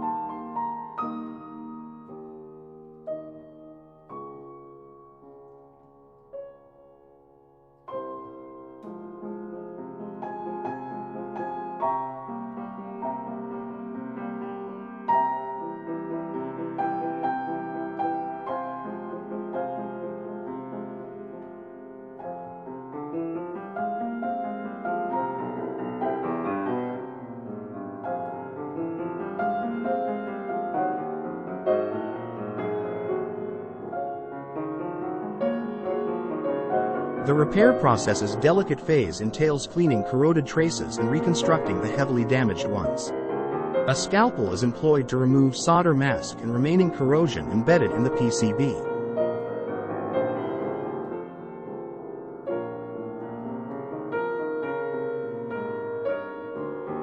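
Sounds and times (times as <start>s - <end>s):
soft piano music: 0.0s - 57.0s.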